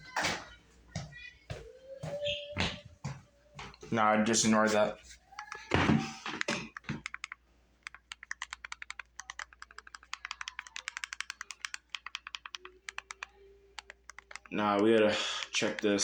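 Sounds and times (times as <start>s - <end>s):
keyboard key clicks: 6.3s - 14.5s.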